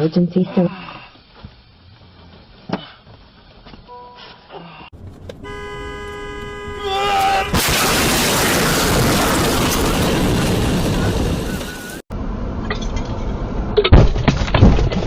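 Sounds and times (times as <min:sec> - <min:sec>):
vehicle crash thumps: 0:07.5 - 0:12.0.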